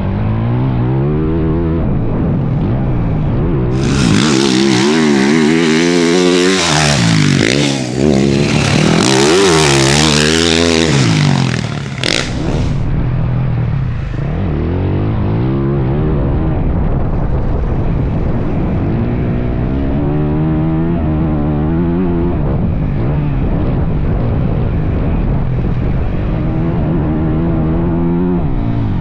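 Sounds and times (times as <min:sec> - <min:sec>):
dirt bike engine revving: 0:03.7 - 0:12.9
loud rushing noise: 0:03.8 - 0:12.8.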